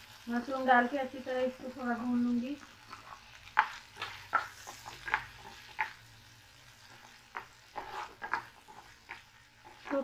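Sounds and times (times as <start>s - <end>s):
mushrooms sizzling in butter: 0.0s - 10.0s
spatula tapping and scraping pan: 2.9s - 6.2s, 6.8s - 10.0s.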